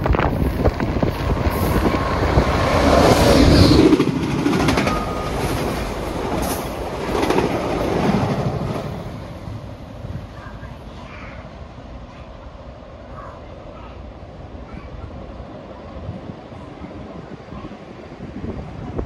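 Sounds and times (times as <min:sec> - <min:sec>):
passenger train passing: 0:00.0 - 0:19.0.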